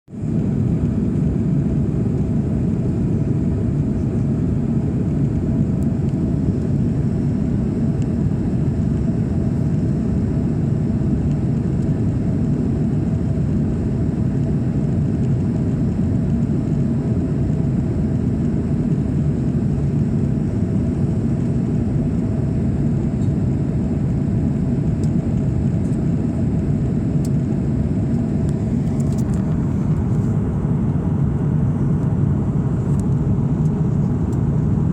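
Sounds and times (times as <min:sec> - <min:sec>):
airliner cabin engine drone: 0:00.1 - 0:34.9
faint steady hum: 0:00.2 - 0:34.9.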